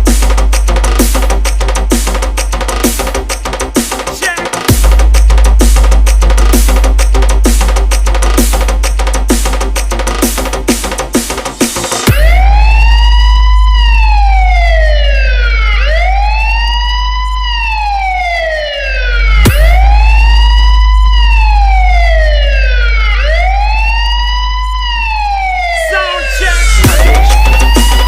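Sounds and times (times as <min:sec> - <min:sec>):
deep sub-bass drone: 0:00.0 - 0:04.0, 0:04.6 - 0:25.6, 0:26.3 - 0:28.0
electronic siren wailing: 0:12.0 - 0:28.0.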